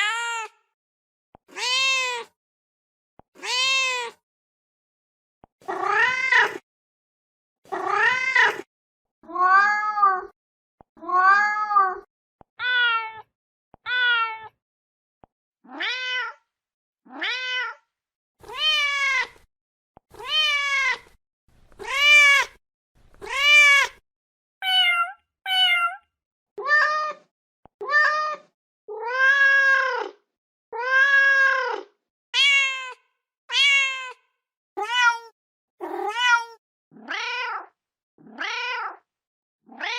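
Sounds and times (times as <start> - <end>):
cat meowing: 0.0 - 0.5, 1.5 - 2.3, 3.4 - 4.2, 5.6 - 6.6, 7.7 - 8.7, 9.3 - 10.3, 11.0 - 13.2, 13.9 - 14.5, 15.7 - 16.4, 17.1 - 17.8, 18.4 - 19.4, 20.2 - 21.2, 21.8 - 22.6, 23.2 - 24.0, 24.6 - 26.0, 26.6 - 30.0, 30.8 - 34.2, 34.8 - 37.7, 38.3 - 39.0.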